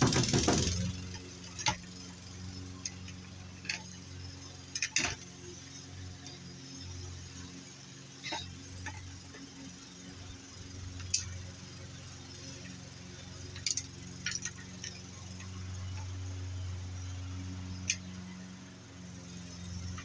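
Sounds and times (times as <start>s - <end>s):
lawnmower engine humming: 0.0s - 20.0s.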